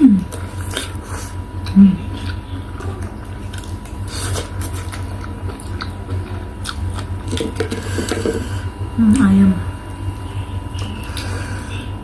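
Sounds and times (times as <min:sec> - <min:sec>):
chewing and biting: 0:00.3 - 0:08.5.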